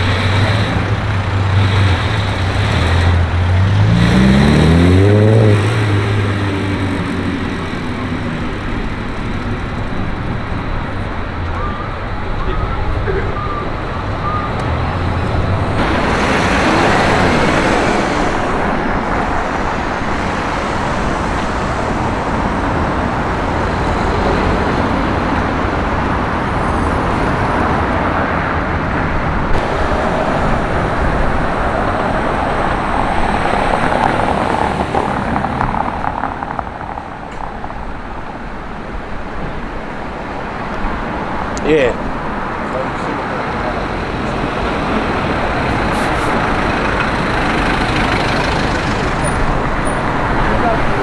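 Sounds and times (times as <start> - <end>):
cars passing: 0.0 - 51.0.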